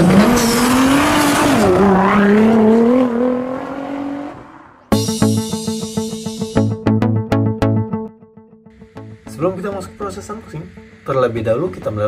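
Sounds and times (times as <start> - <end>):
car engine revving: 0.0 - 5.8.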